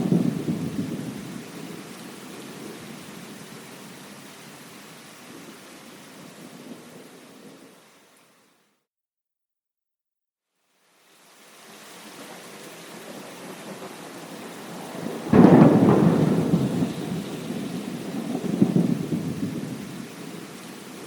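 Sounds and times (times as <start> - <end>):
thunder rumbling: 0.0 - 3.5, 13.0 - 21.0
steady rain hiss: 0.0 - 8.8, 10.5 - 21.0.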